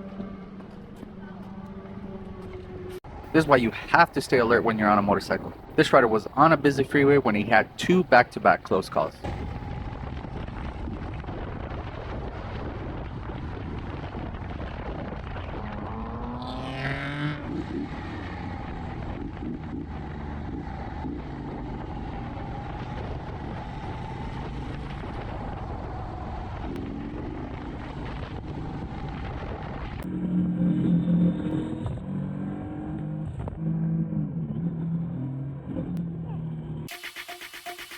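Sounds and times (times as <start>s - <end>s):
wind and road noise: 0.0s - 36.9s
motorcycle engine revving: 14.7s - 27.9s, 30.0s - 37.8s.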